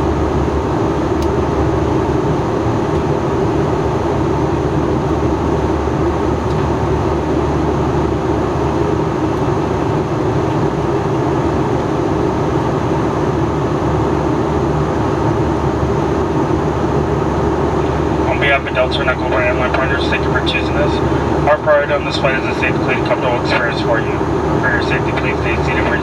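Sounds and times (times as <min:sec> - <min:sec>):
airliner engine drone: 0:00.0 - 0:26.0
rushing airflow: 0:16.8 - 0:26.0.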